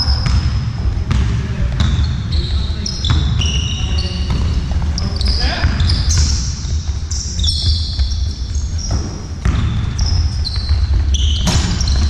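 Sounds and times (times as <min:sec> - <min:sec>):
shoes squeaking on court: 0:00.0 - 0:12.0
ball bouncing on hard floor: 0:04.2 - 0:12.0.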